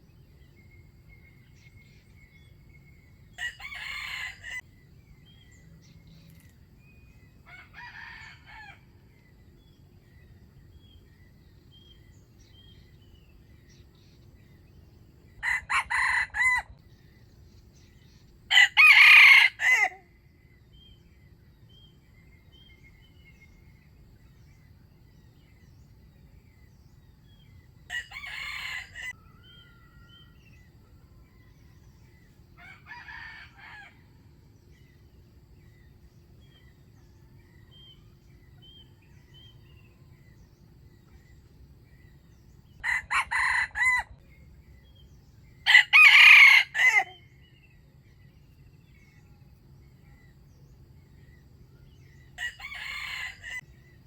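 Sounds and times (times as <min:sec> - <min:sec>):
small bird chirping: 0:00.0 - 0:07.9
roosters crowing: 0:03.3 - 0:04.7, 0:07.4 - 0:09.1, 0:15.3 - 0:16.9, 0:18.5 - 0:20.0, 0:27.9 - 0:34.4, 0:42.4 - 0:44.2, 0:45.6 - 0:47.4, 0:51.9 - 0:53.8.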